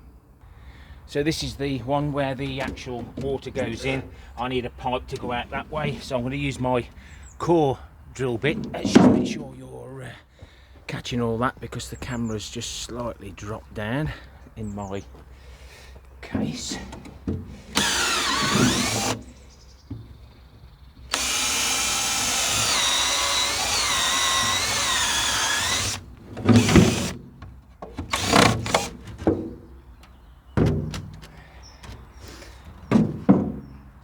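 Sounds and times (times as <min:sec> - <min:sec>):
power drill running: 0:17.7 - 0:19.3, 0:21.1 - 0:27.2, 0:28.1 - 0:29.0
knocks and thuds: 0:30.6 - 0:32.0, 0:32.9 - 0:33.7.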